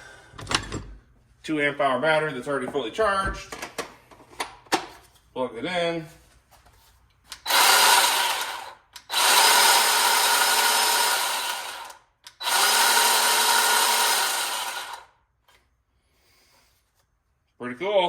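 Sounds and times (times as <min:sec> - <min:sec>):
electric chainsaw running: 0:07.4 - 0:15.2.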